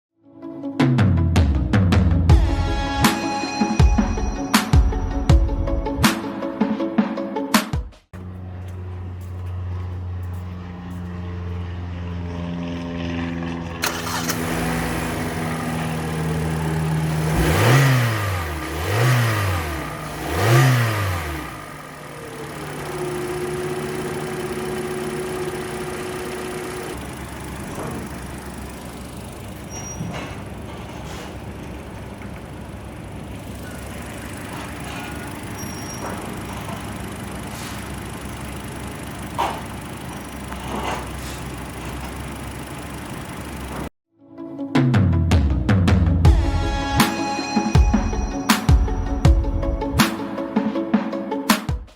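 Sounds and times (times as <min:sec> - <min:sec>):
car engine idling and revving: 0:08.1 - 0:44.0.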